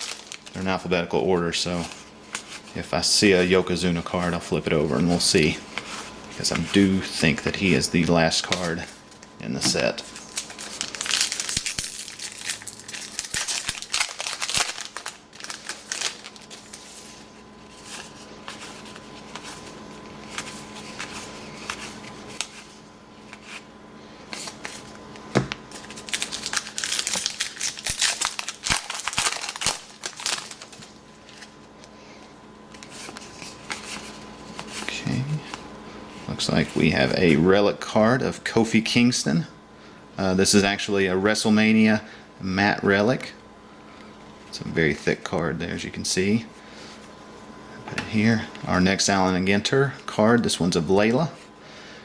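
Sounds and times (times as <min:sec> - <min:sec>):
card wrappers crinkling and tearing: 0:00.0 - 0:35.6
faint steady hum: 0:00.0 - 0:52.0.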